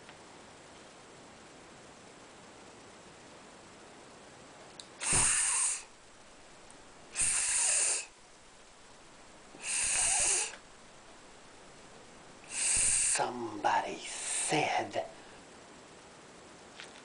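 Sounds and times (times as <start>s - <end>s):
person hissing like a snake: 5.0s - 5.9s, 7.1s - 8.2s, 9.6s - 10.6s, 12.4s - 13.4s, 14.0s - 14.7s.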